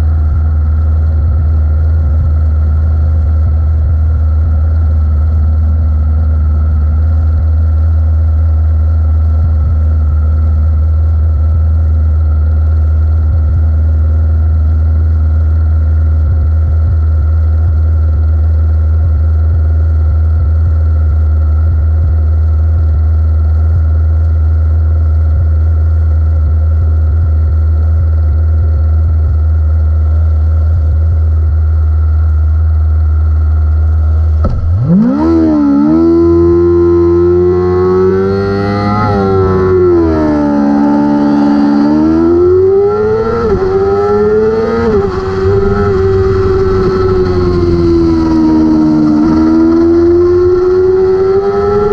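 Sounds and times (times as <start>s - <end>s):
motorcycle engine idling: 44.7s - 49.4s.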